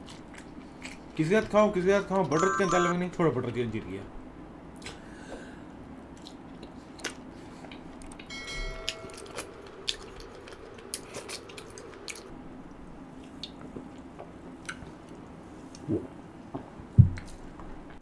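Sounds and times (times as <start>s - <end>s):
wet chewing and biting: 0.0s - 1.2s, 6.1s - 8.3s, 8.9s - 12.3s.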